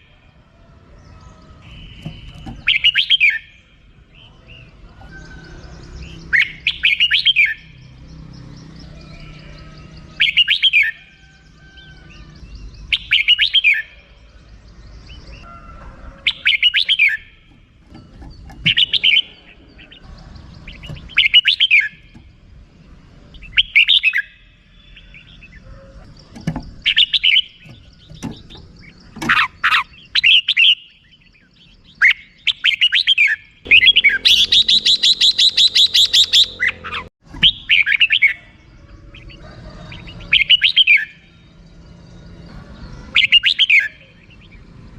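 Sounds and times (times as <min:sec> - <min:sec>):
bird chirping song: 0:00.0 - 0:44.9
bird chattering call: 0:01.3 - 0:03.7, 0:23.4 - 0:39.4.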